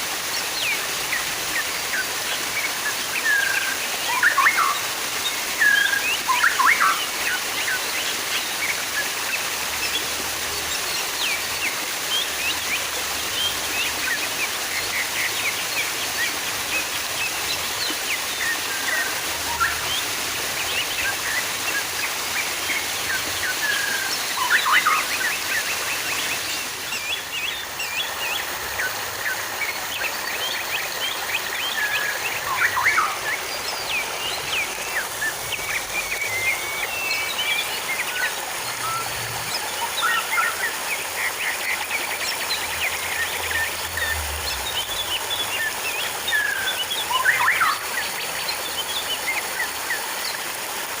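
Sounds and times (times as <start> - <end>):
running splashing water: 0.0 - 51.0
small birds chirping: 0.3 - 50.6.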